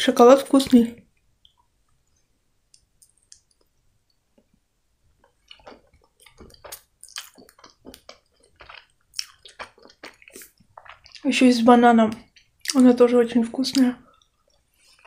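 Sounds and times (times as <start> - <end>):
wet mouth clicks and smacks: 2.7 - 3.7, 5.2 - 11.3
person chewing candy: 5.2 - 12.9, 14.0 - 15.0.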